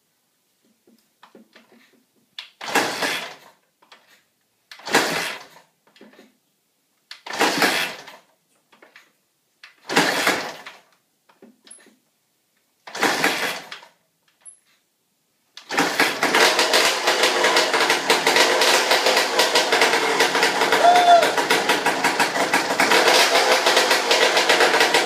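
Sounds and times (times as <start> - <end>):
motorcycle engine kick-start attempts: 1.4 - 4.1, 4.8 - 6.2, 7.2 - 9.0, 9.7 - 10.9, 12.9 - 14.6, 15.6 - 25.0.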